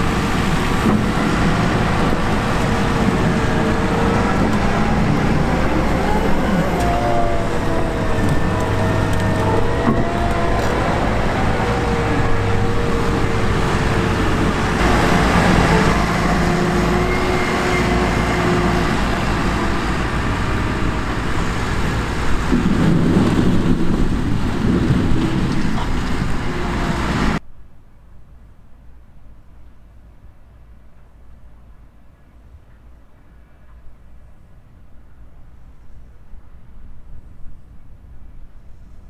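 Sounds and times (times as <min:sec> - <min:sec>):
diesel farm machinery running: 0:00.0 - 0:27.4.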